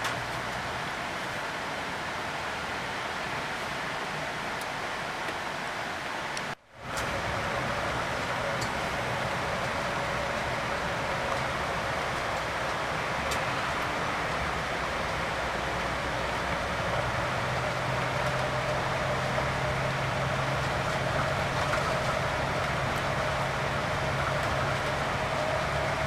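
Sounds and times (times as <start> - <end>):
coach engine and road noise: 0.0 - 26.0
low engine hum: 6.8 - 26.0.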